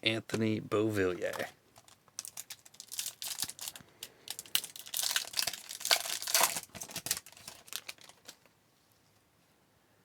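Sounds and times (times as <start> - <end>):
foil wrapper crinkling and tearing: 1.8 - 8.5.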